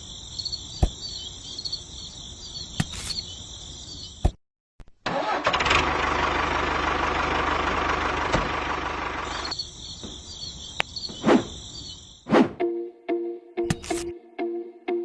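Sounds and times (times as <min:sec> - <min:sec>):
engine running: 0:05.1 - 0:09.6
high wavering chirping: 0:09.3 - 0:12.3
short whooshes: 0:11.2 - 0:11.6, 0:12.3 - 0:12.6.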